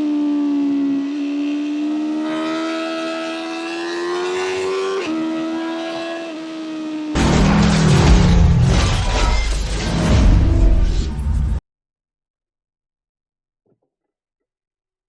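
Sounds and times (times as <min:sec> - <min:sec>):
motorcycle engine whining at high revs: 0:00.0 - 0:07.3.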